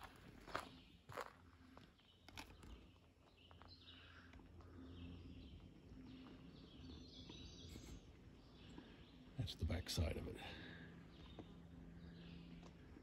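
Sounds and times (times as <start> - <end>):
footsteps on dirt path: 0.0 - 1.9
outdoor background noise: 0.0 - 13.0
songbird chirps and warbles: 0.0 - 13.0.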